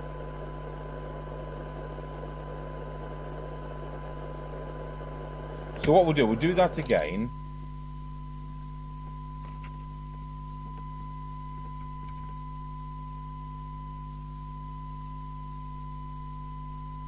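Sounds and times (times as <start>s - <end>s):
low mains hum: 0.0s - 17.0s
steady test tone: 4.9s - 17.0s.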